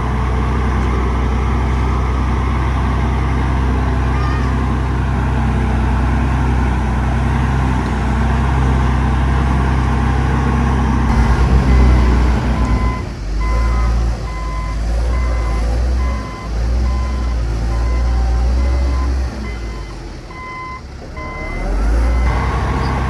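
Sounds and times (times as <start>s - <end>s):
heavy diesel engine running: 0.0s - 23.0s
reversing alarm beeping: 11.1s - 23.0s.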